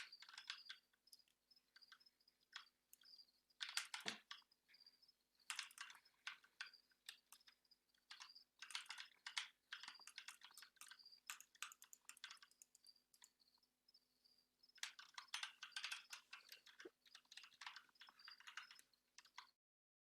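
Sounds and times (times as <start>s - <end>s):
keyboard keys clicking: 8.1s - 13.4s.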